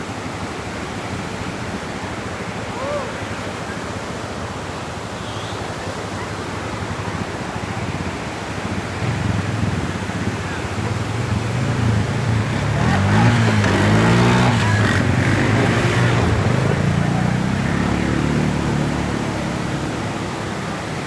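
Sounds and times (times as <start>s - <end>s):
waterfall rushing: 0.0s - 21.0s
vehicle engine: 8.6s - 21.0s.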